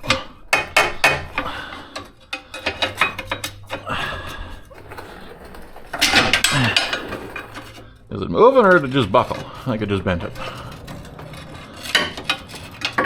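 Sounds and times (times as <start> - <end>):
metal clinks and knocks: 0.0 - 8.1, 8.7 - 13.0
metal scraping: 0.0 - 13.0.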